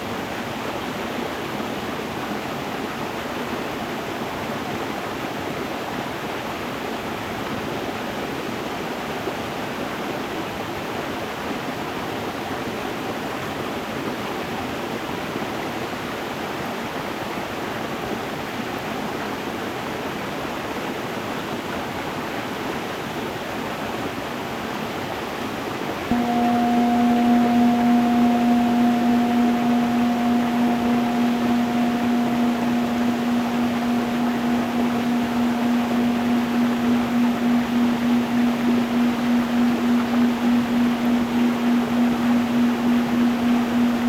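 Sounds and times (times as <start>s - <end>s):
singing bowl ringing: 26.1s - 44.0s.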